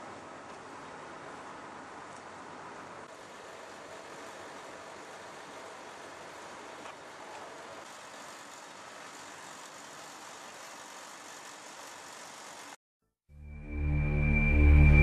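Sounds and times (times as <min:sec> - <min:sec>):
music: 0:13.3 - 0:15.0.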